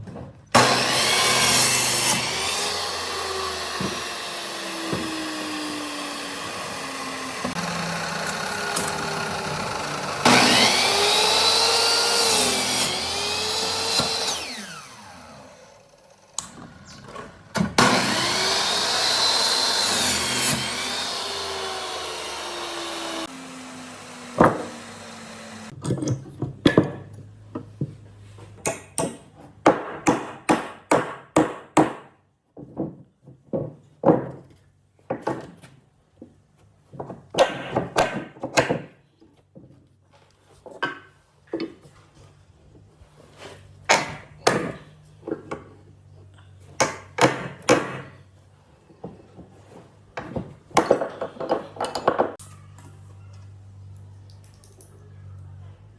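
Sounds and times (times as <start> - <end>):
power tool winding down: 0.6 - 16.8, 17.6 - 25.7.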